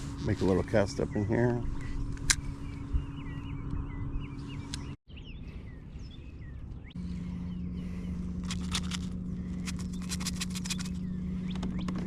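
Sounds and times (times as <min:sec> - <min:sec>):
small birds chirping: 0:00.0 - 0:12.0
steady electric motor hum: 0:06.9 - 0:12.0.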